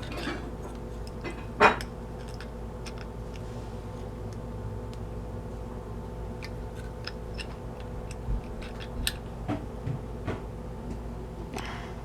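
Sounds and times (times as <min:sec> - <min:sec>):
hand tools clicking and tapping: 0:00.0 - 0:05.0, 0:06.4 - 0:10.4
steady low hum: 0:00.0 - 0:12.0.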